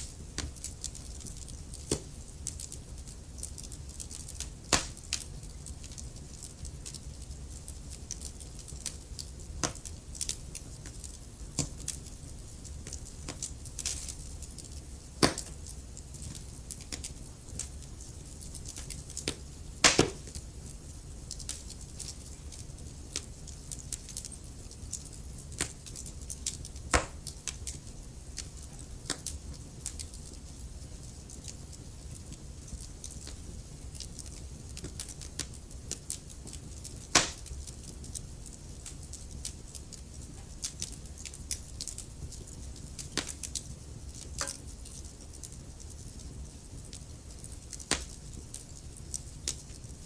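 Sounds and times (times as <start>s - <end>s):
loud pops of burning logs: 0.0s - 7.1s, 8.1s - 24.4s, 25.0s - 27.8s, 32.2s - 46.2s, 46.9s - 49.8s
logs crackling in fireplace: 0.0s - 50.0s
low rumble of flames: 0.0s - 50.0s.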